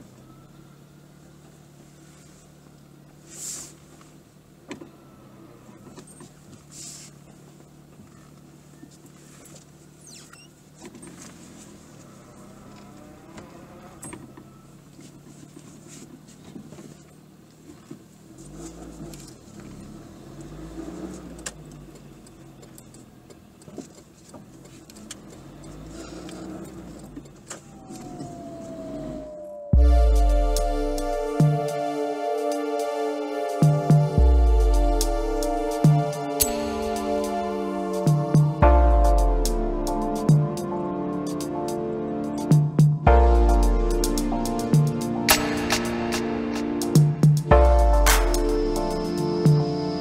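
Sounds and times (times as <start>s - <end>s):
car engine accelerating: 10.6s - 15.8s, 16.6s - 50.0s.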